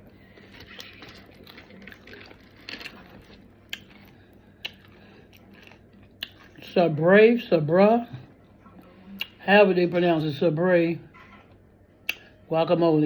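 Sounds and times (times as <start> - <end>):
person chewing chips: 0.0 - 6.7.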